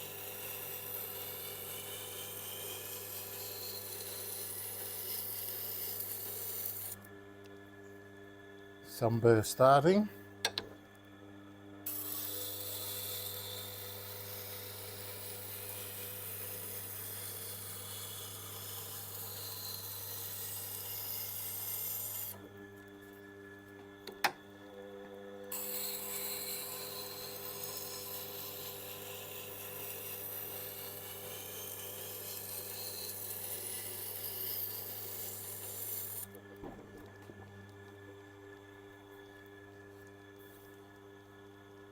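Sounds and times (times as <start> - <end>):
motor hum: 0.0 - 41.9.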